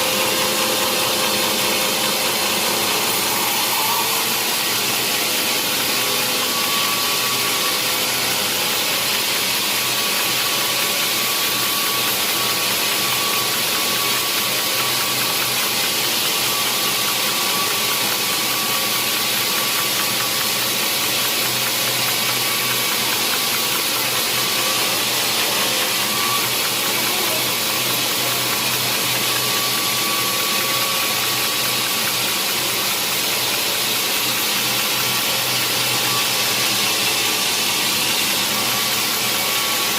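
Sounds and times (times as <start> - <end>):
sawmill saw running: 0.0 - 39.9.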